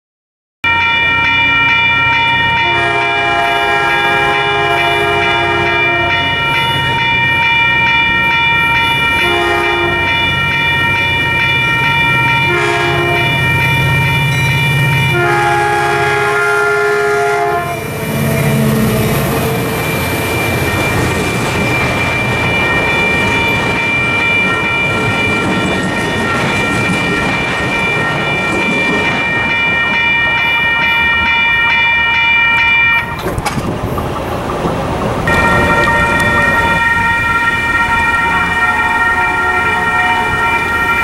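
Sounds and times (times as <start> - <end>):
crossing bells ringing: 0.6 - 41.0
train rumble and wheel clatter: 0.7 - 41.0
train horn chord: 2.2 - 7.1, 9.1 - 10.2, 12.3 - 13.7, 14.8 - 19.9, 35.3 - 41.0.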